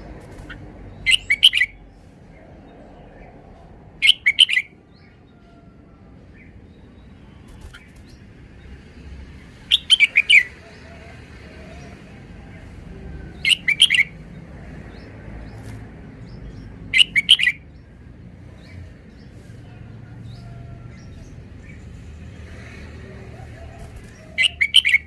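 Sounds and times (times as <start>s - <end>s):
bird singing bright notes: 0.4s - 1.9s, 4.0s - 4.7s, 9.7s - 10.5s, 13.4s - 14.2s, 16.3s - 17.6s, 24.2s - 25.0s.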